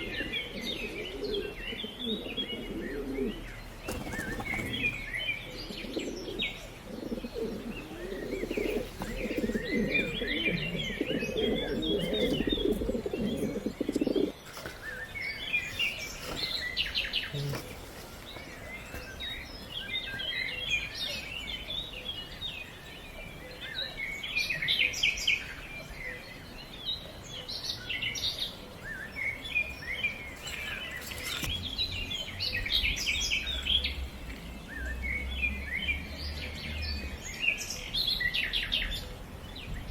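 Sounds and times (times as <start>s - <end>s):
pigeons cooing: 0.0s - 26.3s
small birds chirping: 0.0s - 39.9s.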